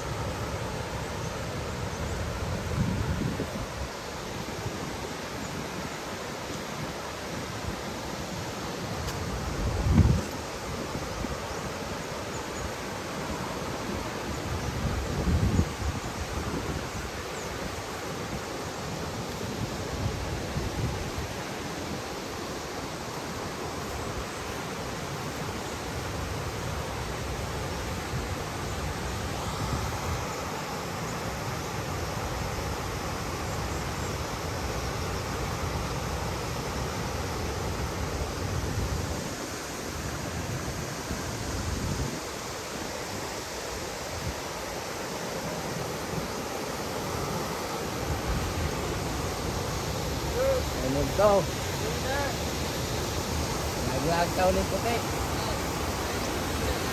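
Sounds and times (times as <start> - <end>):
waterfall rushing: 0.0 - 56.9
wind buffeting microphone: 2.1 - 4.0, 8.9 - 11.6, 13.9 - 18.4.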